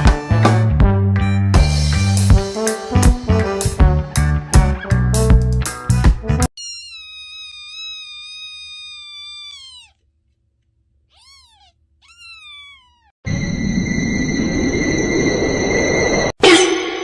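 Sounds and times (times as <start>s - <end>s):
cat meowing: 6.6s - 10.1s, 11.1s - 13.2s.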